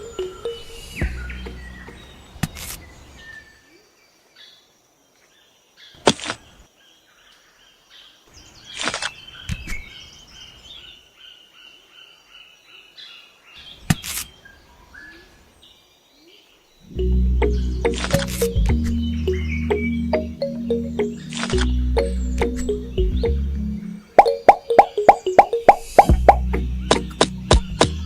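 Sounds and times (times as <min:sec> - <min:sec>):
birds chirping: 0:00.0 - 0:03.9, 0:16.5 - 0:28.0.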